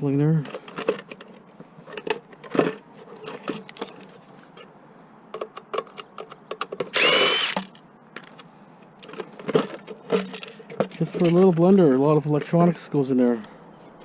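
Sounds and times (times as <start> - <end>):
power drill motor whine: 6.9 - 7.7.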